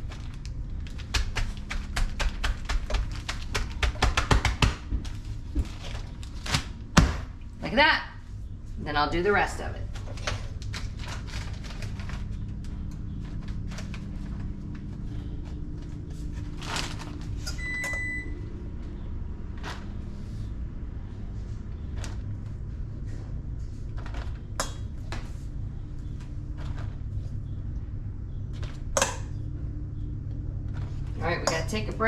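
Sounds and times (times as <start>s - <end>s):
plastic bags rustling: 0.0s - 1.7s, 5.0s - 6.8s, 9.9s - 17.5s
steady low hum: 0.0s - 32.0s
oven timer beep: 17.5s - 18.5s.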